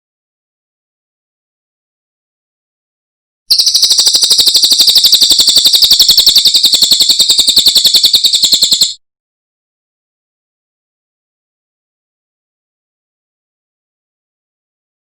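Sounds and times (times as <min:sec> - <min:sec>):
songbird fast high trill: 0:03.5 - 0:09.0.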